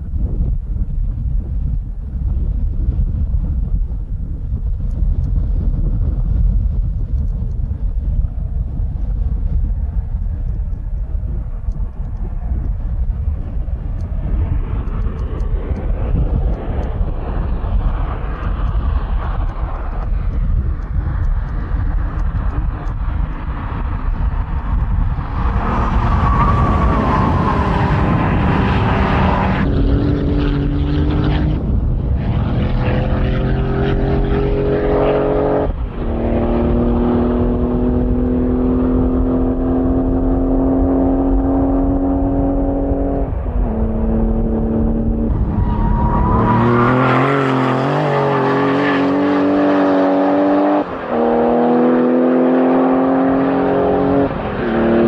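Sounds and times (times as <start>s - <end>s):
road noise: 0.0s - 55.0s
car engine accelerating: 14.0s - 55.0s.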